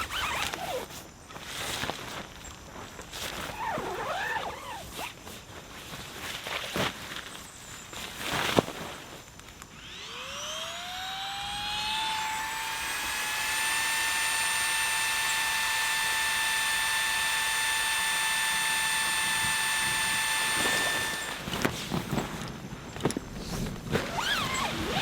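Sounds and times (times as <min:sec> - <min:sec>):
small electric motor whine: 0:00.0 - 0:01.4, 0:09.2 - 0:25.0.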